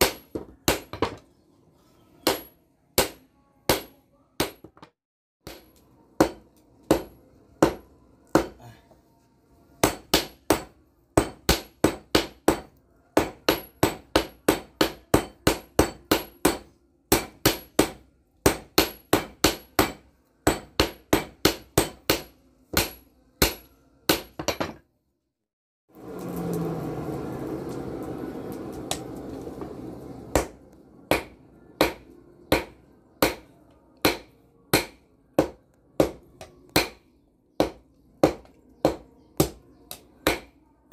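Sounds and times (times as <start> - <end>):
hammer striking steel on anvil: 2.2 - 8.6, 9.8 - 24.8, 30.3 - 37.0, 37.6 - 40.6.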